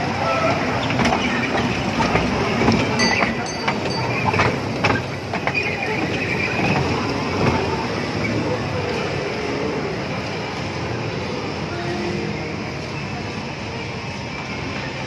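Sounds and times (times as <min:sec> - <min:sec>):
busy mall din: 0:00.0 - 0:15.0
ride-on train running: 0:00.0 - 0:15.0
clicks and clacks: 0:00.9 - 0:07.6
high beeping: 0:03.0 - 0:04.7.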